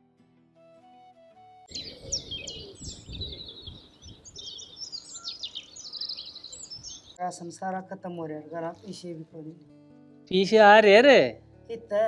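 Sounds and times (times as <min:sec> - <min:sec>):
background music: 0:00.0 - 0:01.9, 0:07.2 - 0:12.0
small birds chirping: 0:01.7 - 0:07.2
low wind-like rumble: 0:01.8 - 0:07.0.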